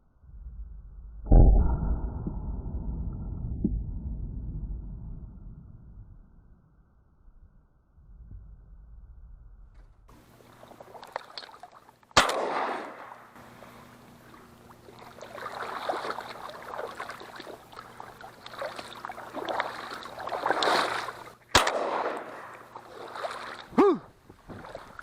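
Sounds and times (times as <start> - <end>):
splashing in water: 10.2 - 25.0
shotgun shot: 12.2 - 13.4, 21.5 - 22.6.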